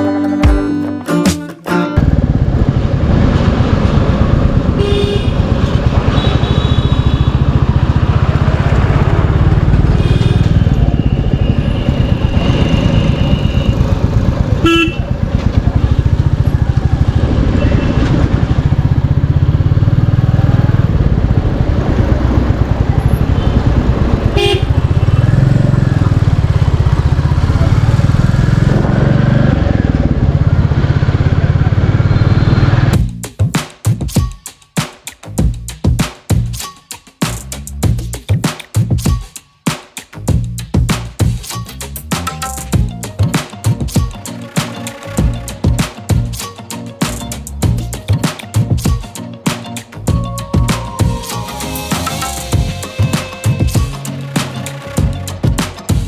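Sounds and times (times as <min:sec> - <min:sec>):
motorcycle engine running: 0:02.0 - 0:11.0, 0:12.9 - 0:33.2, 0:55.0 - 0:56.0
vehicle horns: 0:04.7 - 0:16.5, 0:23.1 - 0:25.6.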